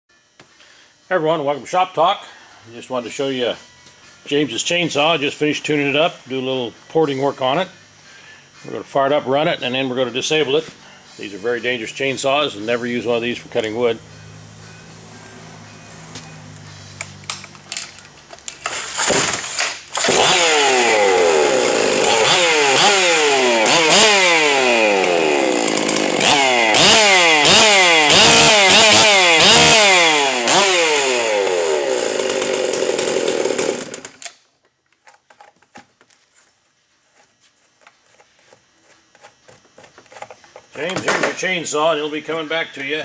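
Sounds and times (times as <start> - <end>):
chainsaw revving: 18.6 - 34.2.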